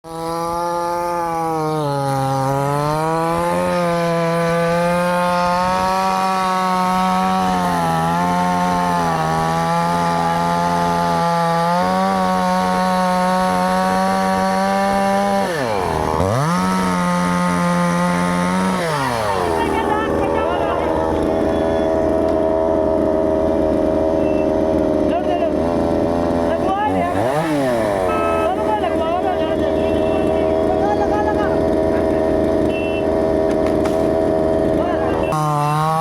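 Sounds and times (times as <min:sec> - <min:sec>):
chainsaw cutting wood: 0:00.0 - 0:36.0.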